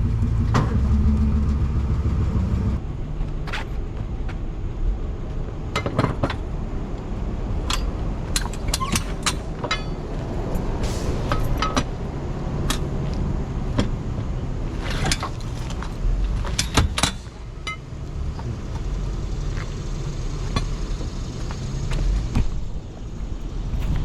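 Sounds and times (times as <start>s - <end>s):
towing gear clanking and jingling: 7.6s - 12.0s, 14.7s - 18.5s.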